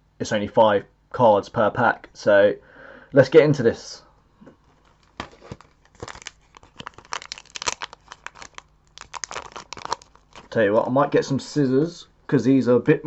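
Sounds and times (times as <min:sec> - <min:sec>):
foil wrapper crinkling and tearing: 0:04.8 - 0:10.9.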